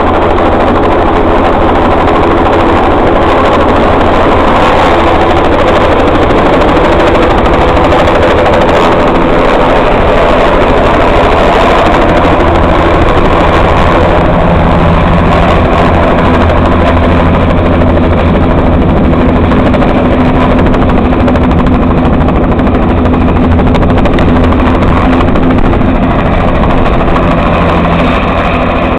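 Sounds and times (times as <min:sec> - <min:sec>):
helicopter rotor beating: 0:00.0 - 0:28.9.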